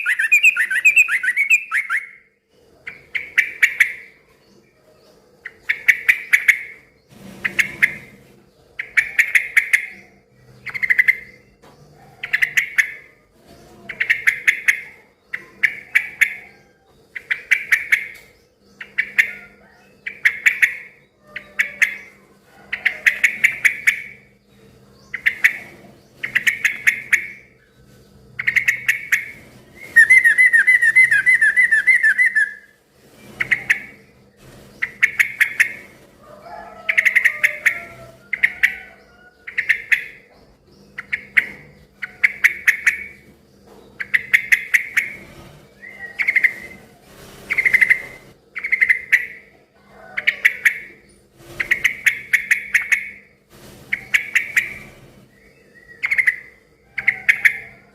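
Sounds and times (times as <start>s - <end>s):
bird chattering calls: 0.0s - 4.2s, 5.4s - 8.2s, 13.9s - 24.4s, 25.0s - 27.7s, 28.3s - 34.1s, 34.8s - 43.3s, 43.9s - 45.2s, 45.8s - 46.9s, 47.5s - 51.0s, 51.6s - 53.3s, 53.9s - 57.9s.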